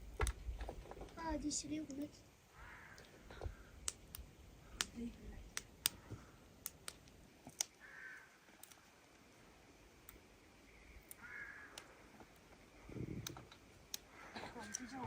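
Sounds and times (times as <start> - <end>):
bird calls: 2.5 - 4.0, 5.8 - 6.4, 7.6 - 8.8, 10.5 - 15.0
small clicks: 8.5 - 8.9.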